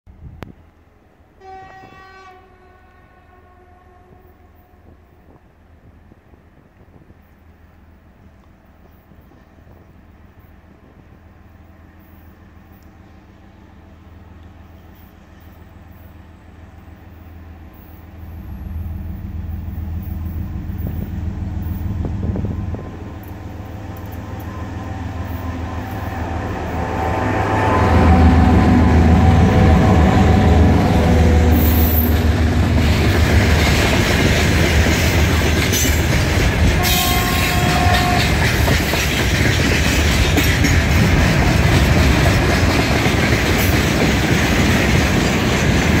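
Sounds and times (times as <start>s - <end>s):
diesel locomotive engines droning: 0.1s - 46.0s
wagons clattering over rail joints: 32.1s - 46.0s.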